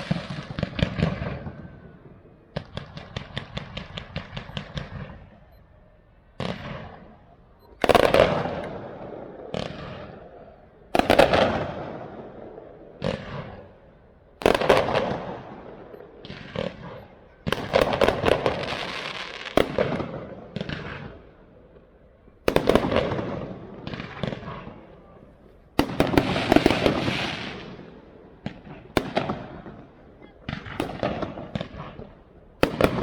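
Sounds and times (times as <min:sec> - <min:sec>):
fireworks crackling: 0:00.0 - 0:05.5, 0:14.4 - 0:33.0
fireworks bursting: 0:00.0 - 0:05.6, 0:06.2 - 0:33.0.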